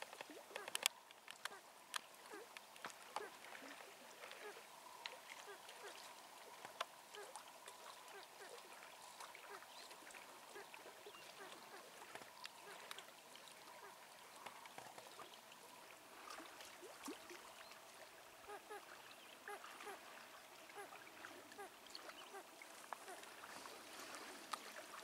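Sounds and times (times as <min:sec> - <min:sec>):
light clicks: 0:00.0 - 0:03.3.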